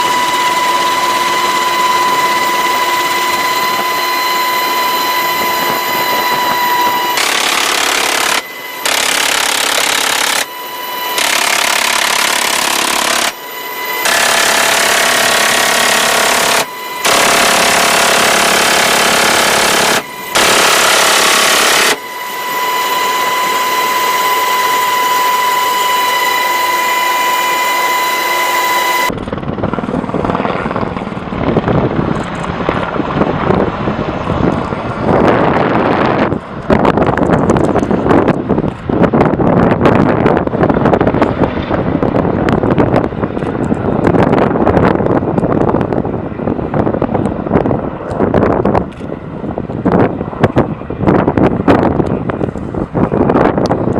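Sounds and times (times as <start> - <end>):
helicopter: 0.0 - 53.9
steady high whine: 0.0 - 53.9
machine gun automatic fire: 7.2 - 10.5, 11.2 - 13.4, 14.0 - 22.0.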